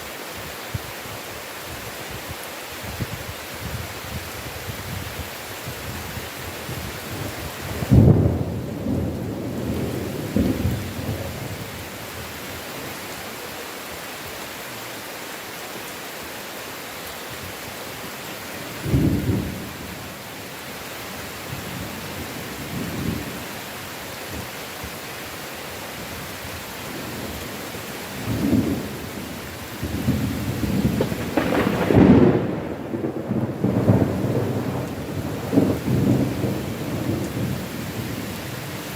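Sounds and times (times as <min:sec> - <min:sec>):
heavy rain: 0:00.0 - 0:38.9
thunder: 0:07.8 - 0:11.6, 0:29.8 - 0:37.6.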